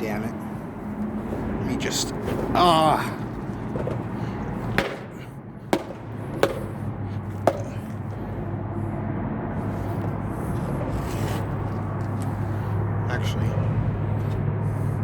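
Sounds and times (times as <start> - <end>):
sharp short knocks: 3.2 - 8.3.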